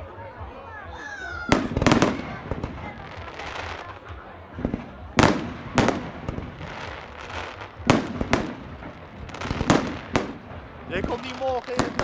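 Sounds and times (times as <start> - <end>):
fireworks bangs: 1.5 - 12.0
fireworks crackling: 1.5 - 12.0.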